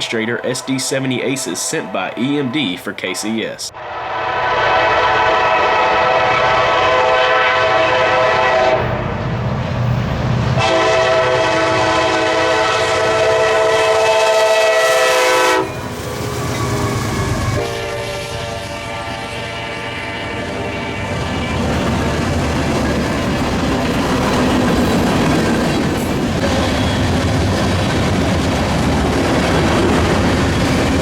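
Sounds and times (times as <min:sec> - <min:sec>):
locomotive air horn blasts: 0:03.8 - 0:09.0, 0:10.6 - 0:15.9, 0:17.6 - 0:21.6.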